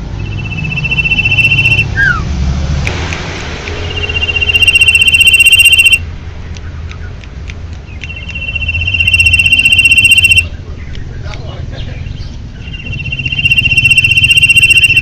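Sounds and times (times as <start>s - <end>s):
bird buzzy trills: 0.0s - 2.3s, 3.8s - 6.0s, 7.8s - 10.5s, 12.1s - 15.0s.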